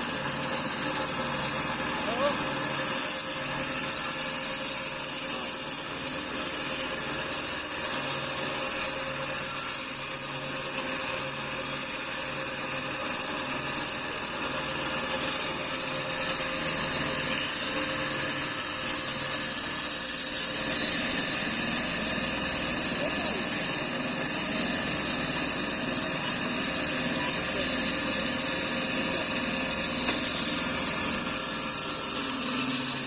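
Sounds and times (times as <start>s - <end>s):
saw blade high-pitched hiss: 0.0s - 33.0s
motor humming: 11.4s - 33.0s.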